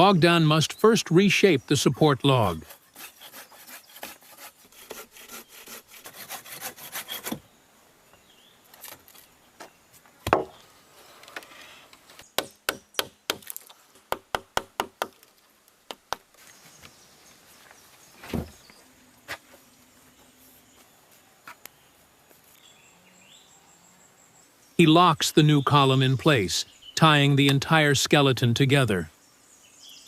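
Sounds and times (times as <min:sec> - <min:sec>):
rasping sawing on wood: 0:02.6 - 0:07.4
tool knocking on wood: 0:10.3 - 0:10.5.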